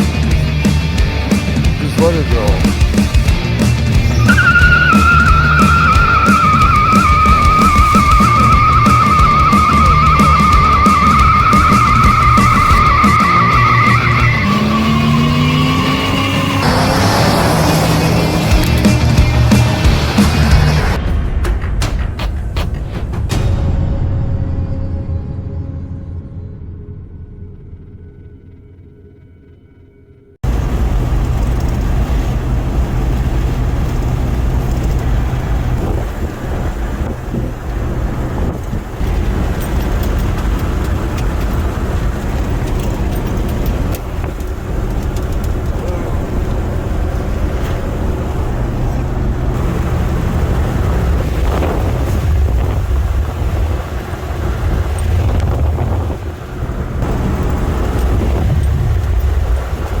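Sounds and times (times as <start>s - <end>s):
car engine and road rumble: 0.0s - 24.2s, 30.1s - 60.0s
tyre and wind noise: 30.4s - 60.0s.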